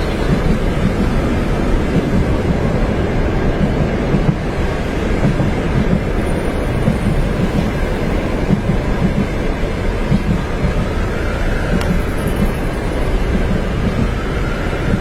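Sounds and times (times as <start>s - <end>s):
low track knocks: 0.0s - 14.3s
train rumbling on rails: 0.0s - 15.0s.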